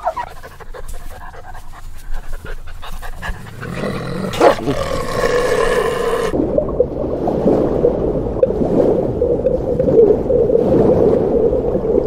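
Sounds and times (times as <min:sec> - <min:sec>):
wolves panting: 0:00.0 - 0:05.1.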